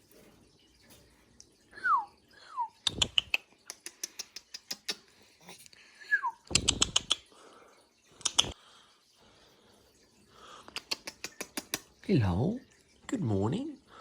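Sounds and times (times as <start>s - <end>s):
sharp clicks taps and flutters: 2.8s - 5.1s, 6.5s - 7.3s, 8.2s - 8.6s, 10.7s - 12.0s.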